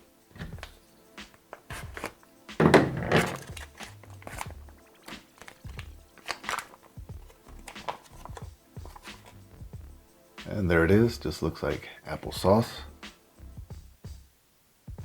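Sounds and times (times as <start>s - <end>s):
foil pouch crinkling: 1.4s - 2.2s, 3.0s - 9.4s
clicks and knocks: 2.0s - 4.4s.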